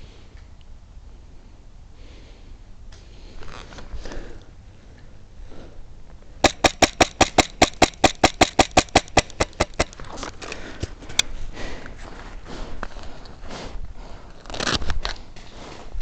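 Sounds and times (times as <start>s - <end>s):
airsoft gun shots: 6.4s - 10.0s.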